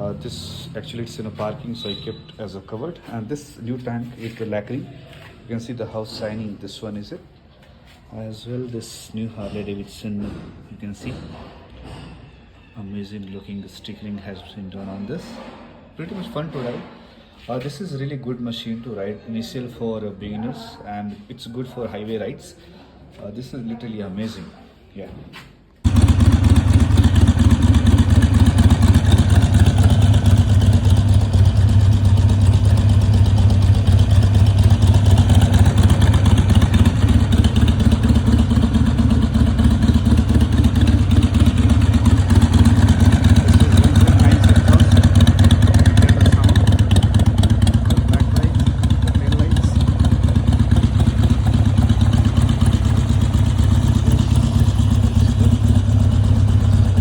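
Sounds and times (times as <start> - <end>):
motorcycle engine idling loudly: 25.9 - 57.0.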